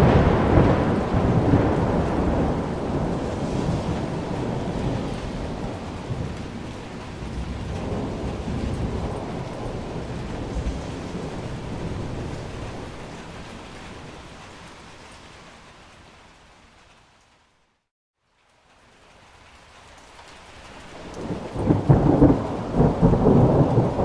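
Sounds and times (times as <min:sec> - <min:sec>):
low rolling thunder: 0:00.0 - 0:14.6, 0:21.0 - 0:24.0
steady rain: 0:00.0 - 0:24.0.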